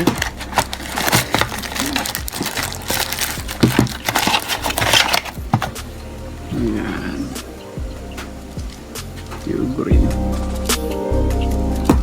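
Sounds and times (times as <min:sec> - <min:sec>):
packaging crinkling and tearing: 0:00.0 - 0:05.8.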